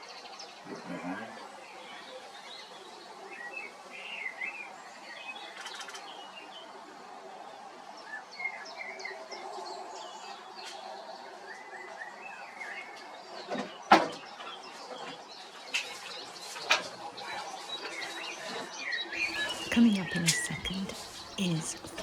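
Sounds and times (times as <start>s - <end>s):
small birds chirping and singing: 19.2s - 22.0s
steady background noise: 19.2s - 22.0s.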